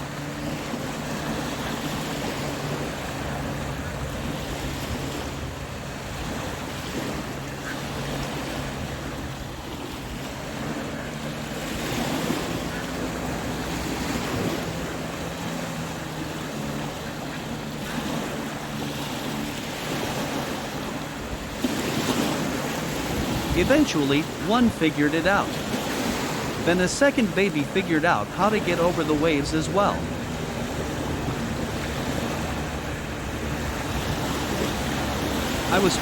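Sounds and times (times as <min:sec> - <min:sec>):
ocean surf breaking: 0:00.0 - 0:36.0.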